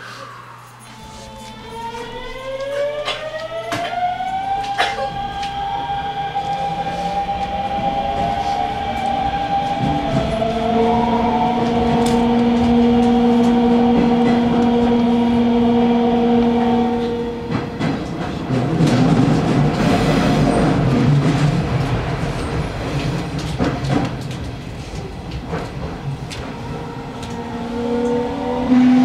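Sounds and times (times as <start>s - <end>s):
train traction motors whining: 0.5s - 22.1s
train wheels clacking over rail joints: 17.0s - 27.4s.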